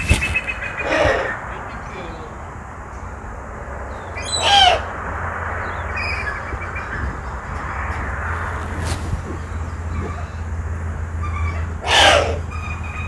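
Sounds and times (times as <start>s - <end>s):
owl calling: 0.0s - 2.1s, 3.9s - 13.0s
outdoor background hiss: 0.0s - 13.0s
faint bird chirp: 5.6s - 13.0s.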